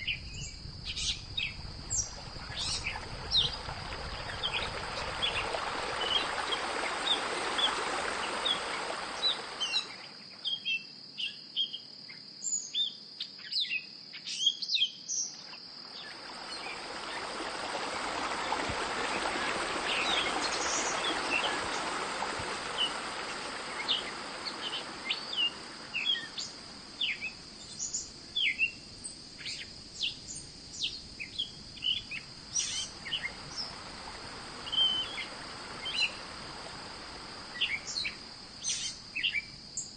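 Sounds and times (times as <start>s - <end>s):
small birds chirping: 0.0s - 11.8s, 18.1s - 28.8s, 29.4s - 33.8s
broad rushing noise: 1.6s - 9.9s, 16.1s - 26.9s.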